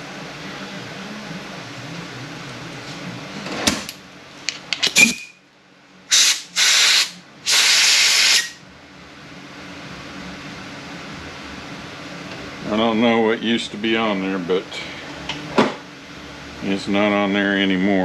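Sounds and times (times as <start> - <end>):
pressurized spray hissing: 6.1 - 8.5.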